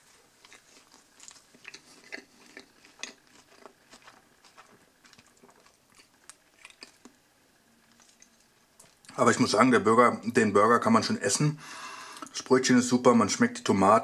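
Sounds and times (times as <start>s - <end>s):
person chewing a burger: 0.0s - 7.2s.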